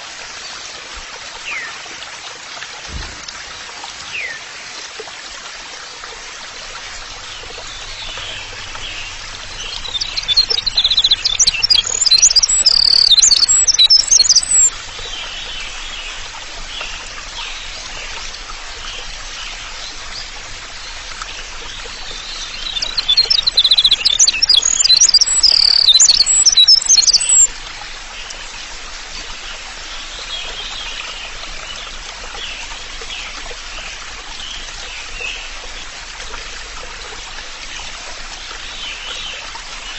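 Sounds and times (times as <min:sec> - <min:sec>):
running water: 0:00.0 - 0:39.9
songbird singing: 0:06.8 - 0:27.5
faint chirping: 0:07.0 - 0:14.7, 0:21.8 - 0:27.5.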